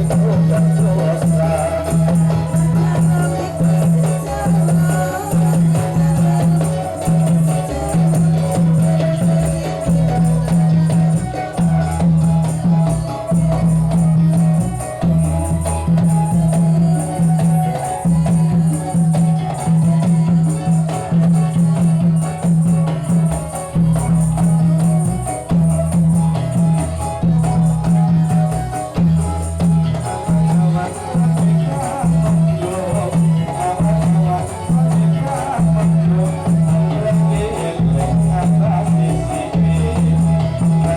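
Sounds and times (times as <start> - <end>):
steady percussion rhythm: 0.0 - 40.9
tambourine jingles: 0.0 - 40.9.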